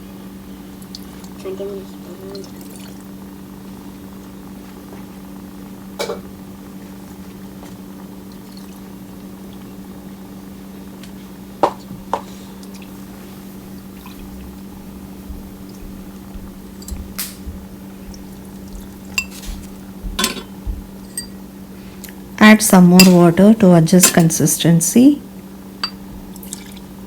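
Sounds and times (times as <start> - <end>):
low electrical hum: 0.0 - 27.0
water pouring into pot: 2.4 - 3.2, 26.3 - 27.0
utensils clinking on pot: 19.1 - 19.5, 20.2 - 21.4, 22.9 - 23.4, 24.0 - 24.4, 25.8 - 26.6.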